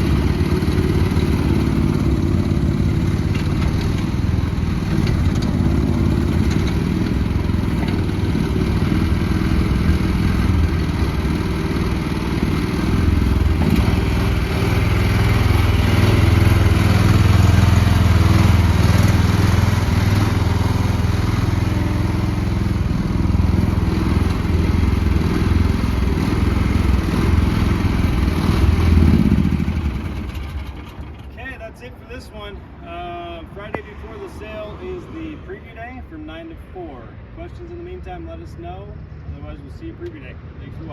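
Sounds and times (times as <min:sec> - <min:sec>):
mini excavator engine running: 0:00.0 - 0:31.4.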